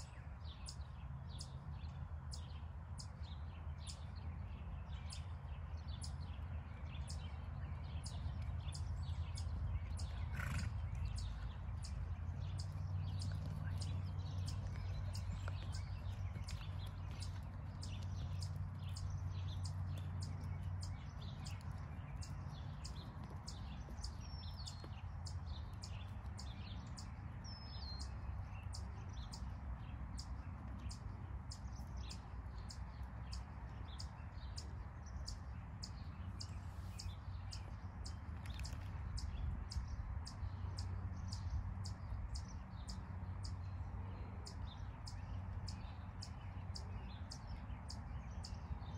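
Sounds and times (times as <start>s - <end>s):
birds chirping: 0.0s - 48.9s
steady low rumble: 6.6s - 28.0s.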